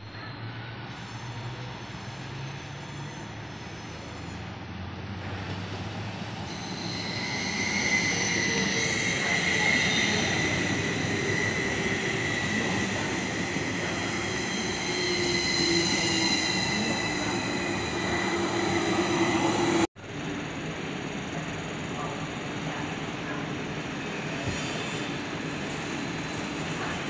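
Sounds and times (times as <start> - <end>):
train rumbling past: 2.8 - 19.9
high-pitched wheel squeal: 5.6 - 19.9.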